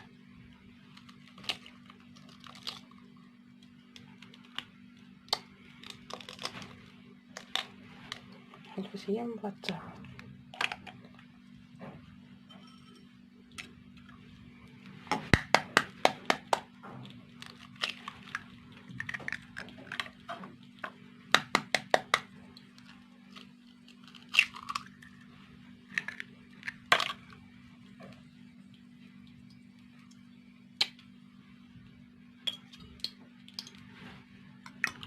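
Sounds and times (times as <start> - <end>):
steady low hum: 0.0 - 35.0
dishes and utensils clinking: 12.4 - 13.2.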